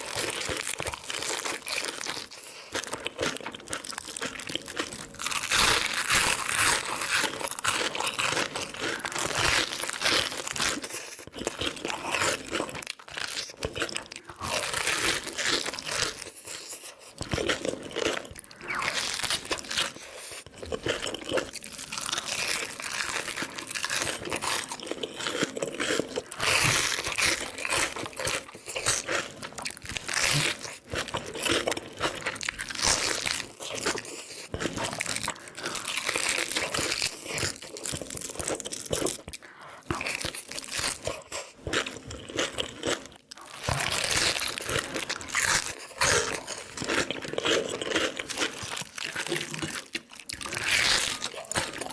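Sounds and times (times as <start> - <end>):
chewing crunchy food: 0.0 - 51.9.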